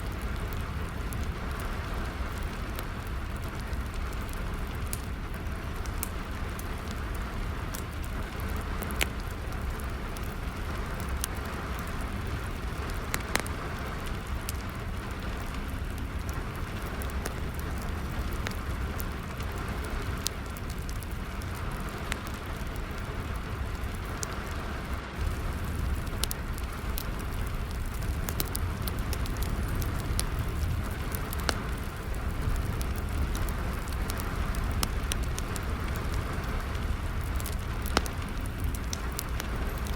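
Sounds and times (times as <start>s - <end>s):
rain falling: 0.0s - 39.9s
wood fire crackling: 0.0s - 39.9s.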